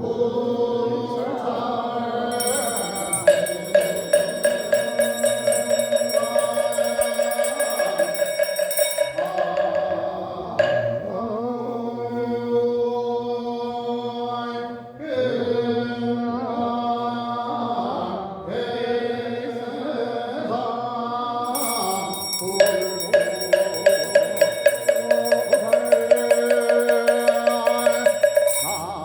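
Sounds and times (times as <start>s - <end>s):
ritual chanting: 0.0s - 29.0s
percussion strikes: 2.3s - 11.7s, 21.5s - 29.0s.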